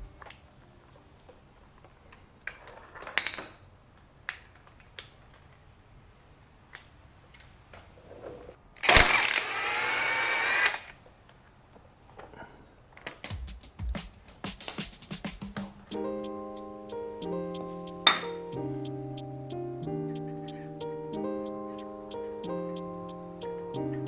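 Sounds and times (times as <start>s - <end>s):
metal tools clinking: 3.0s - 4.0s
power tool running: 8.8s - 11.0s.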